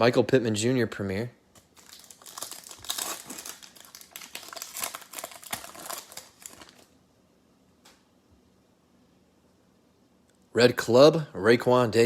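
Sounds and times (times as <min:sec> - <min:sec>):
foil wrapper crinkling: 0:01.6 - 0:07.0.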